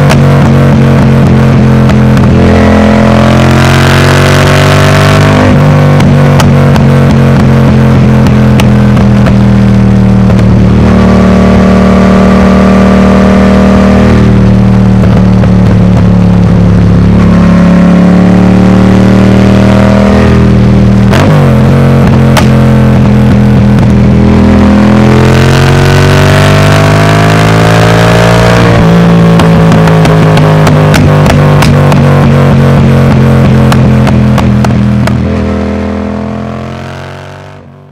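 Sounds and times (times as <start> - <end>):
motorcycle engine accelerating: 0.0 - 37.9
exhaust cracks: 4.0 - 11.0, 26.2 - 36.1.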